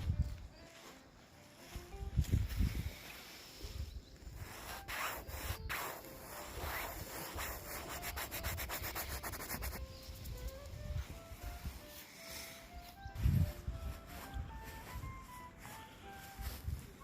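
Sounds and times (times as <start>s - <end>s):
faint melody: 0.0s - 17.0s
rough scraping and rubbing: 4.4s - 10.5s.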